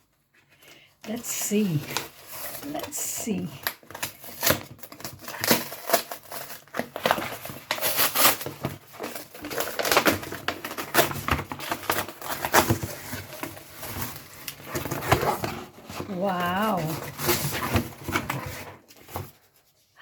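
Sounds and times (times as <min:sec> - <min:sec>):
packaging being torn open: 0:03.6 - 0:15.4.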